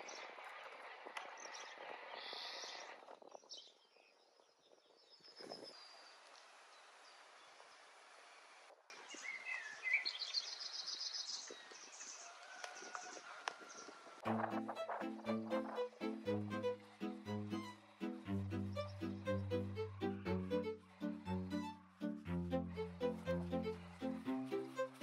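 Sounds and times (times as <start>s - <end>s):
birds chirping: 14.6s - 25.0s.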